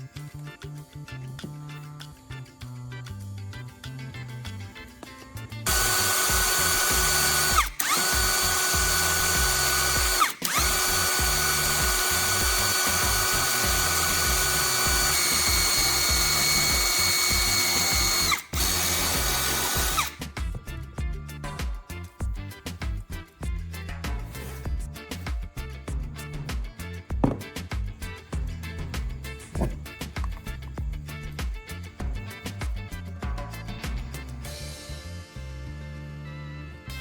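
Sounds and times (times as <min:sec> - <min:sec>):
electric motor whining: 0:05.0 - 0:20.2.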